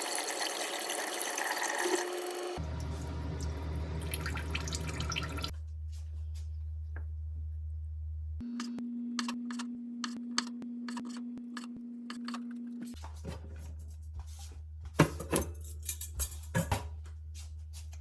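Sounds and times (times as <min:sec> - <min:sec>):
utensils and dishes clattering: 0:15.0 - 0:17.0.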